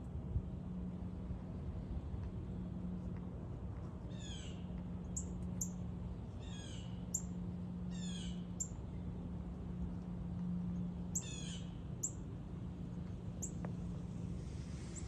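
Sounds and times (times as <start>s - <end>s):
steady low hum: 0.0s - 15.0s
songbird calling: 11.1s - 12.2s.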